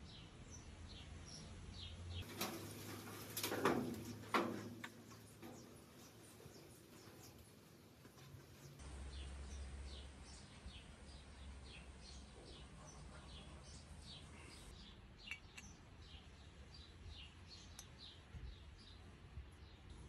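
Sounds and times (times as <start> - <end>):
small bird chirping: 8.5 - 19.9.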